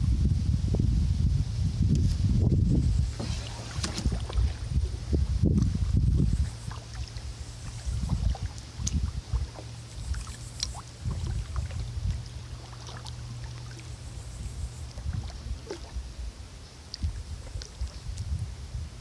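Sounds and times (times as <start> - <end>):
steady low rumble: 0.0 - 19.0
paddle water splashing and dripping: 3.1 - 18.3.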